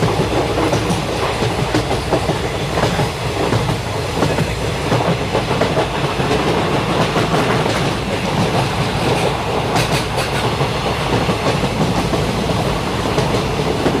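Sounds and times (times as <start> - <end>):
train rumbling along track: 0.0 - 14.0.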